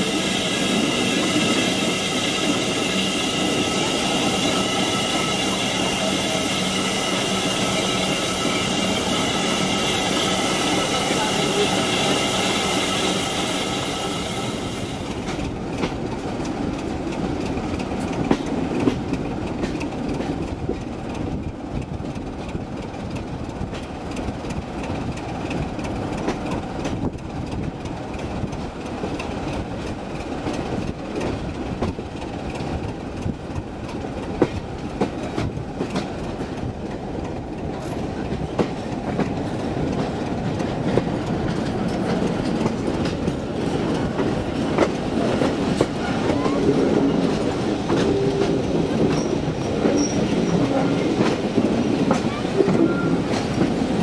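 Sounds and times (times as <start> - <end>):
train wheels rumbling on track: 0.0 - 54.0
high ringing: 0.1 - 15.0.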